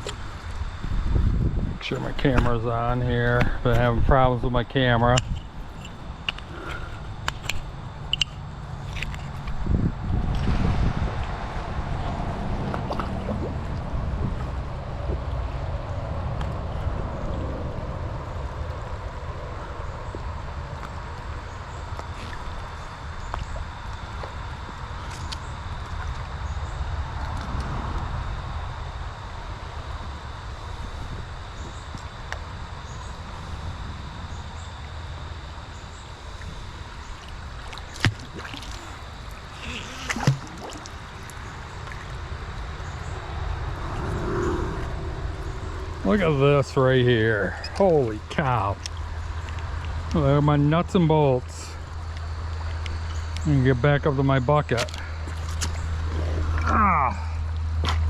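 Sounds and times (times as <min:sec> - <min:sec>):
low rumble: 0:00.0 - 0:25.0, 0:25.6 - 0:50.6
creek water running: 0:36.1 - 0:58.0.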